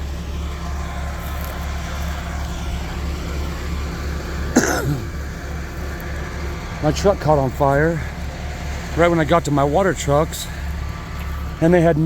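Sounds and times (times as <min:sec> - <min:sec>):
vehicle engine idling: 0:00.0 - 0:12.0
engine cough: 0:04.1 - 0:05.6.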